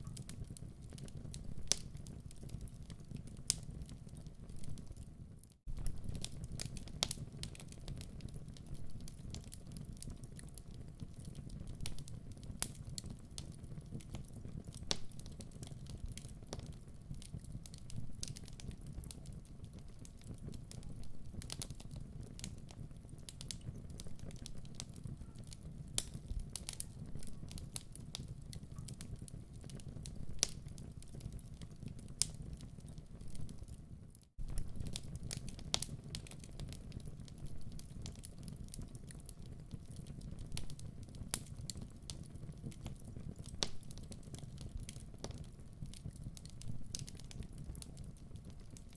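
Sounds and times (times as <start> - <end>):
wood fire crackling and popping: 0.0 - 48.9.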